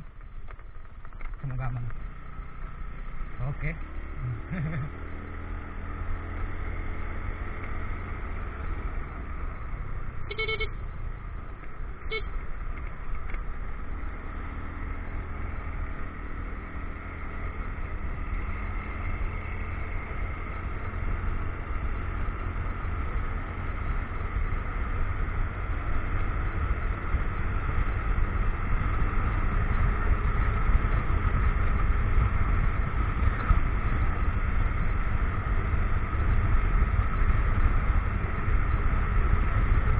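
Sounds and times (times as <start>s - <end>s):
motorcycle running: 0.0s - 39.9s
short horn beeps: 10.2s - 10.8s, 12.0s - 12.4s.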